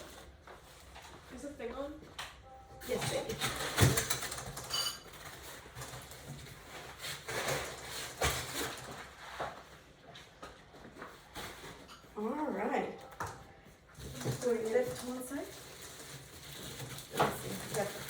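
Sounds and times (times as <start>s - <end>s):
handling cardboard packaging: 2.8s - 12.3s, 13.9s - 18.0s.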